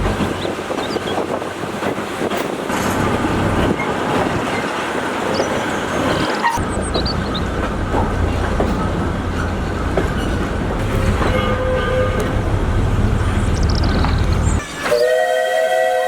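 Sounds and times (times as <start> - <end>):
wheels clattering over rails: 0.0 - 14.9
steam train rumbling: 0.0 - 16.0.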